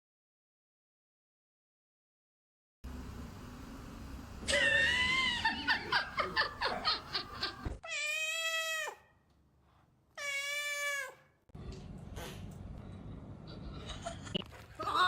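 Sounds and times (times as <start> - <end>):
cat crying: 7.8 - 9.1, 10.2 - 11.3
cat meowing: 7.8 - 9.1, 10.2 - 11.3.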